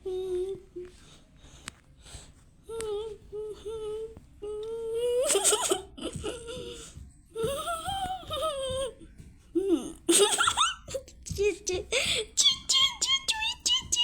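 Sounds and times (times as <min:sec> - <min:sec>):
person humming: 0:02.7 - 0:06.8.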